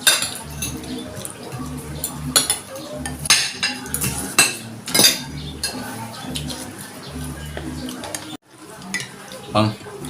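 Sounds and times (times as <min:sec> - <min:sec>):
cutlery clinking on a plate: 0:00.0 - 0:01.3, 0:02.3 - 0:06.5, 0:08.0 - 0:09.4.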